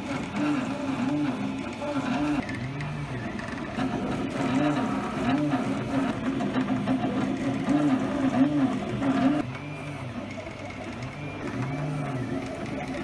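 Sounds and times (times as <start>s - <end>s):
stepper motors whining: 0.0s - 13.0s.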